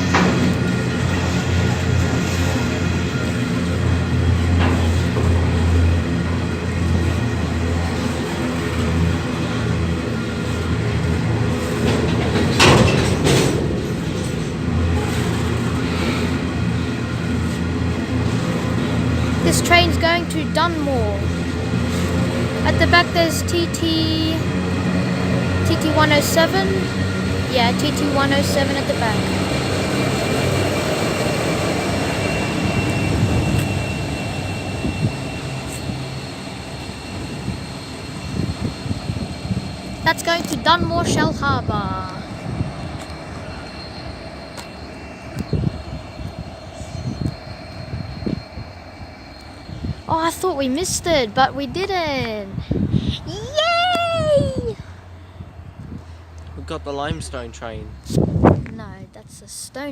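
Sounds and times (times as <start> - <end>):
electric train motor hum: 0.0 - 53.2
high whine: 0.0 - 59.2
train rush of noise: 0.0 - 59.9.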